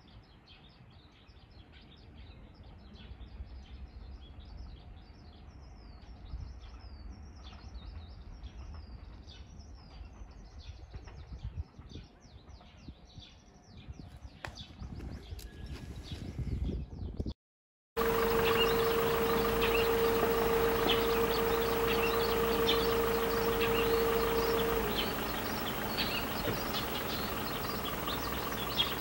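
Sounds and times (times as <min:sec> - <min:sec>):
low background rumble: 0:18.0 - 0:29.0
small birds chirping: 0:18.0 - 0:29.0.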